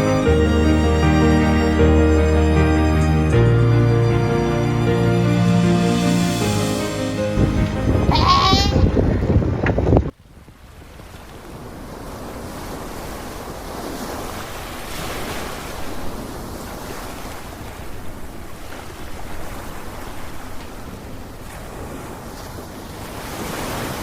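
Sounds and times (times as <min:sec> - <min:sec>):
sea waves washing: 0:00.0 - 0:09.7
wind rumbling on microphone: 0:07.3 - 0:14.8.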